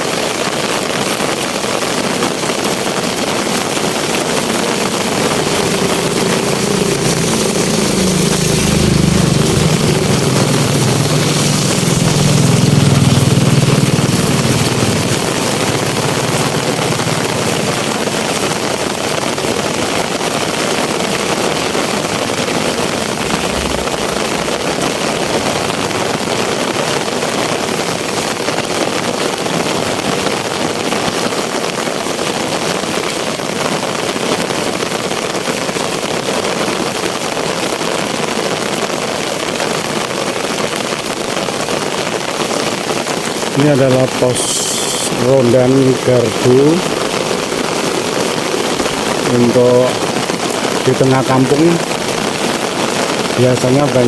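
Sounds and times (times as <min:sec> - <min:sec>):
heavy rain pouring: 0:00.0 - 0:54.0
low rumble: 0:03.8 - 0:18.4, 0:21.6 - 0:26.8.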